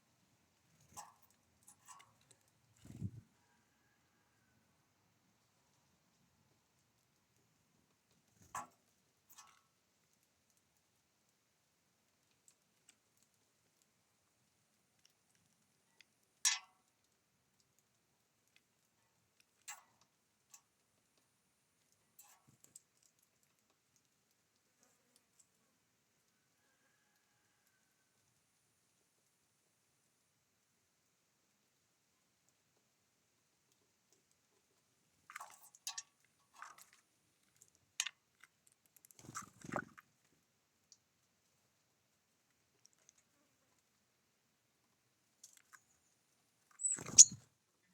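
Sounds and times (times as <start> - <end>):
birds pecking and tapping: 0.7 - 3.2, 6.6 - 25.6, 33.7 - 41.3, 45.3 - 46.1, 46.7 - 47.5.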